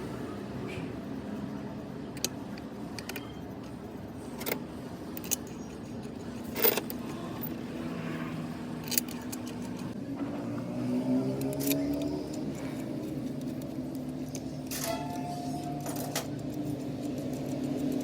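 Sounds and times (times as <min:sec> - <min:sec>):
low mechanical hum: 0:00.0 - 0:18.0
metal tools clinking on engine parts: 0:04.3 - 0:07.6, 0:14.1 - 0:17.9.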